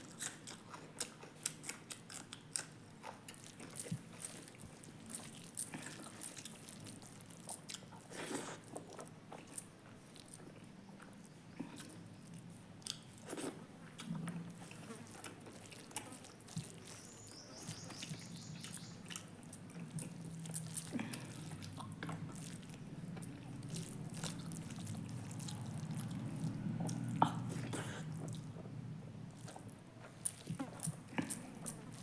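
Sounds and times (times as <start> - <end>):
person chewing: 0.0 - 28.6, 29.3 - 32.0
low steady hum: 8.7 - 32.0.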